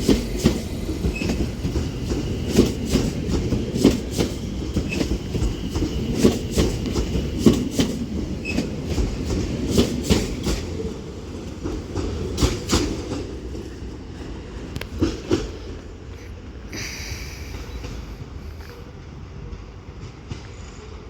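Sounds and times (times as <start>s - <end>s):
train wheels clacking over rail joints: 0.0s - 20.9s
train low rumble: 0.0s - 21.0s.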